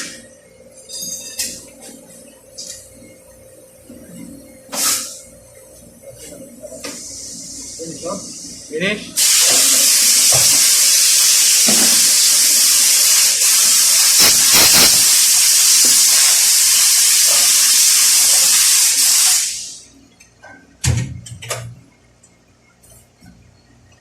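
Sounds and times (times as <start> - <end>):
pressurised air jet hissing: 9.2 - 19.8.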